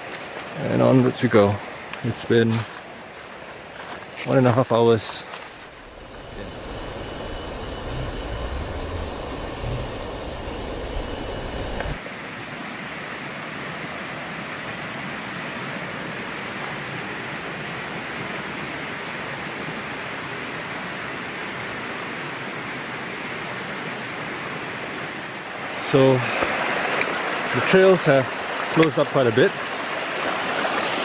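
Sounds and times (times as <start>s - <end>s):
stream water rushing: 0.0s - 9.6s, 11.9s - 31.0s
dull rumbling: 5.6s - 12.0s.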